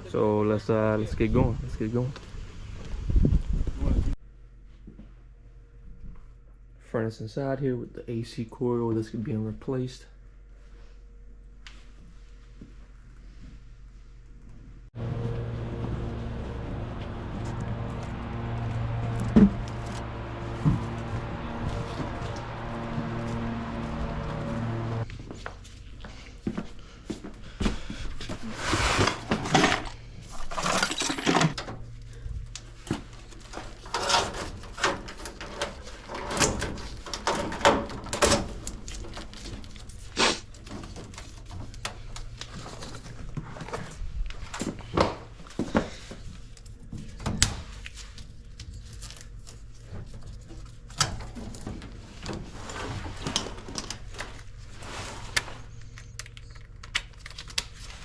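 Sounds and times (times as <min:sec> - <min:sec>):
steady low hum: 0:09.4 - 0:58.0
tools and sheet metal clanking: 0:30.5 - 0:31.8, 0:33.5 - 0:39.7.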